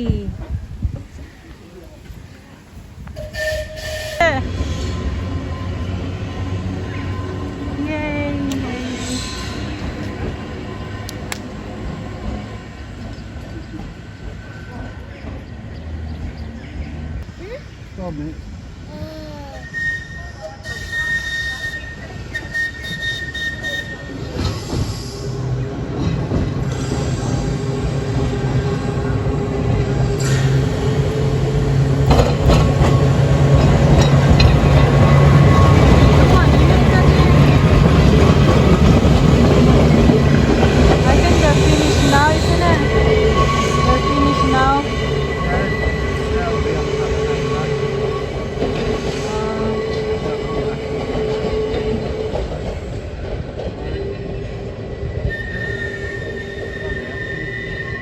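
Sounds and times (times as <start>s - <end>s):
tram running hum: 0.0s - 58.0s
wheel rumbling: 27.5s - 54.7s.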